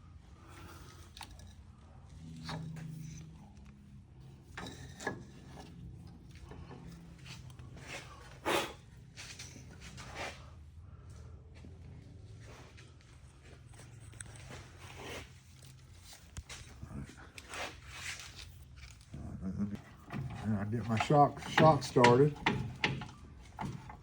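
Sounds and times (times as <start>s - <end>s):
tools and parts clicking and knocking: 4.4s - 7.6s, 19.8s - 24.0s.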